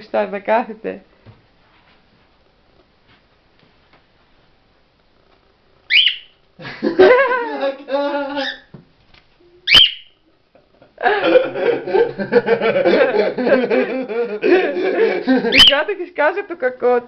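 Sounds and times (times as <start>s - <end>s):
cockatiel chirping calls: 5.9s - 6.4s, 8.4s - 8.7s, 9.7s - 10.2s, 15.5s - 15.8s.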